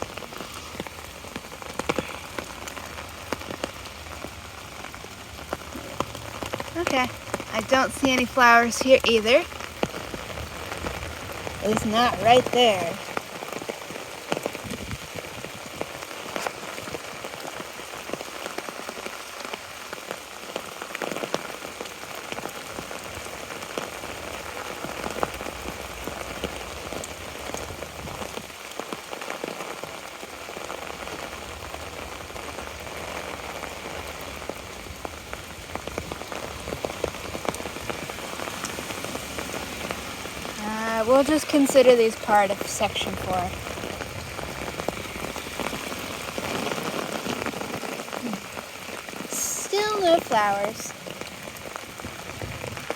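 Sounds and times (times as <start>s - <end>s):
raindrops ticking close by: 0.0s - 52.9s
steady rain falling: 0.0s - 52.9s.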